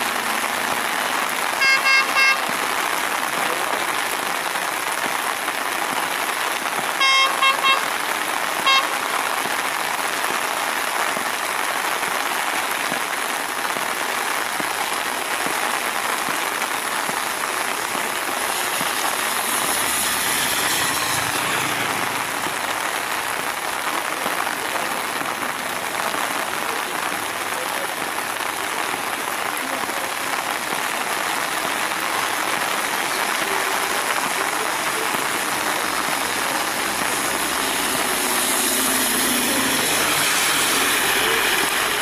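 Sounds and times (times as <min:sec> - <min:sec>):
heavy rain falling: 0:00.0 - 0:42.0
train horn toots: 0:01.6 - 0:02.5, 0:07.0 - 0:07.9, 0:39.0 - 0:42.0
train running noise: 0:18.5 - 0:22.7, 0:35.5 - 0:42.0.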